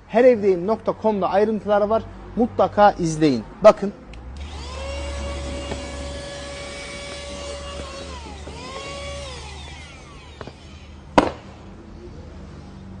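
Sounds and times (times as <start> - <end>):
vacuum cleaner motor whining: 4.4 - 10.9.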